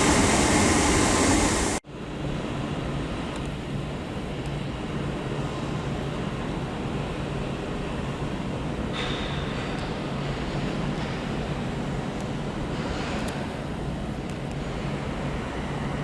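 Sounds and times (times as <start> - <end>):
faint high whine: 0.0 - 1.8
train low hum: 0.0 - 5.0.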